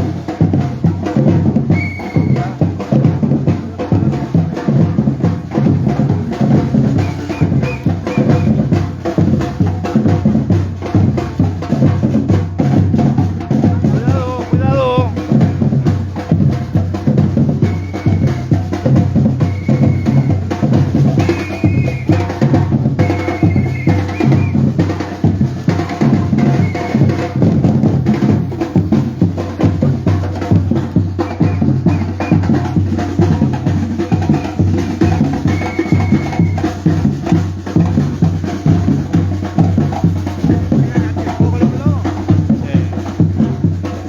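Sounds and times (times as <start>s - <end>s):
drum group playing: 0.0s - 44.0s.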